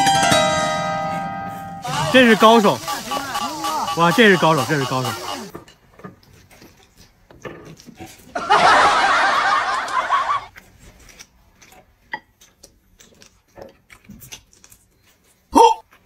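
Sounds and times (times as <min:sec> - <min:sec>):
snickering laughter: 0:08.4 - 0:10.5.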